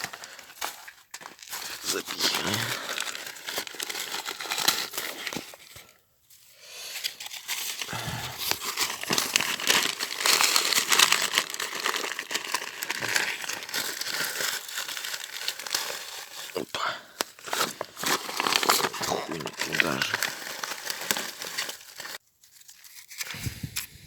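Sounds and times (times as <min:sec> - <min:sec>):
paper crumpling and rustling: 0:00.0 - 0:23.4.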